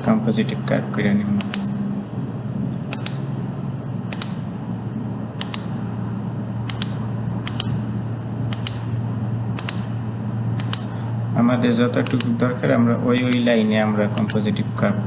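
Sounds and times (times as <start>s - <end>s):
steady low hum: 0.0s - 15.0s
computer mouse clicks: 1.4s - 1.7s, 2.7s - 3.2s, 4.1s - 4.4s, 5.4s - 5.7s, 6.7s - 7.8s, 8.5s - 8.9s, 9.6s - 9.9s, 10.6s - 10.9s, 12.0s - 12.4s, 14.2s - 14.4s.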